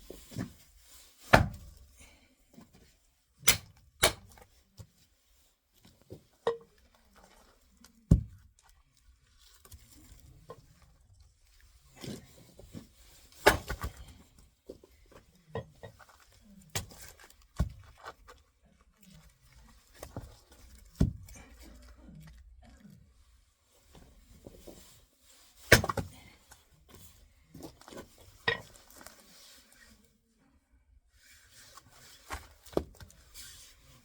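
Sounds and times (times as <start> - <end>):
axe splitting wood: 1.3 - 1.8, 3.4 - 4.4, 13.4 - 14.2, 25.7 - 26.2.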